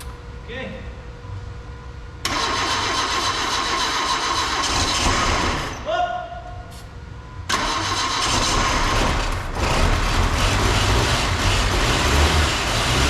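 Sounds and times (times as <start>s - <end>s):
car engine running: 7.7s - 13.0s.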